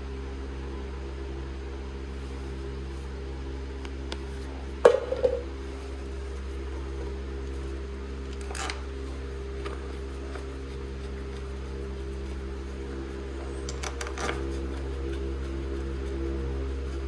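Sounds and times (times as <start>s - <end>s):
mechanical hum: 0.0s - 17.0s.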